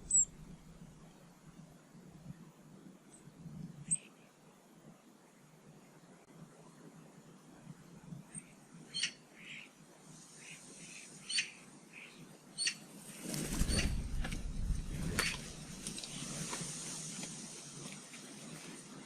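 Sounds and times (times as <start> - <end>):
starling calls and chirps: 0.0 - 0.6, 8.3 - 14.2
wings flapping and rustling: 13.0 - 19.0.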